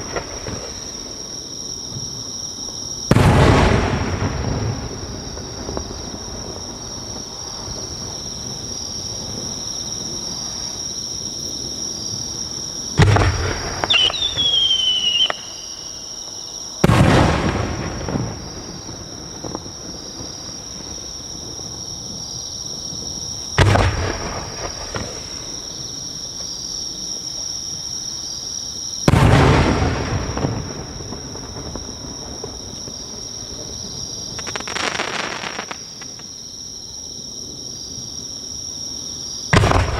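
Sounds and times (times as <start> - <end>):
firework booms with rolling echoes: 0.0 - 36.4, 39.4 - 39.9
crickets chirping: 0.0 - 39.9
firework falling whistle: 13.0 - 19.7, 34.4 - 36.3.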